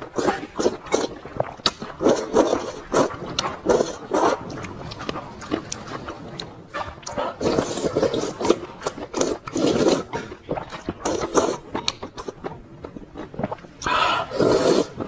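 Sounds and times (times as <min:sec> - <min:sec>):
wet chewing of noodles: 0:00.0 - 0:15.0.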